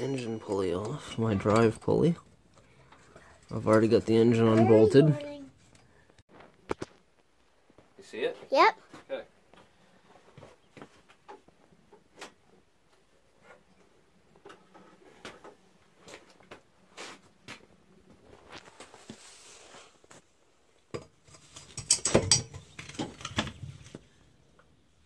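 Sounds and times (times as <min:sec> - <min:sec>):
metal tools clinking and tapping: 0:00.0 - 0:04.7, 0:20.9 - 0:23.5
metal clanks and knocks: 0:20.9 - 0:23.6.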